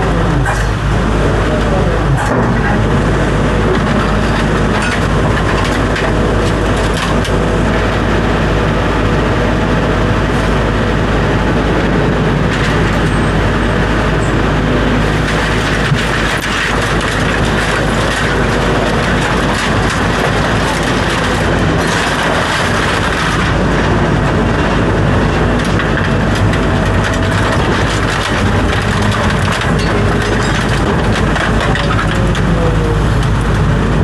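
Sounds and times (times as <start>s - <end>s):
vehicle running with low hum: 0.0s - 34.0s.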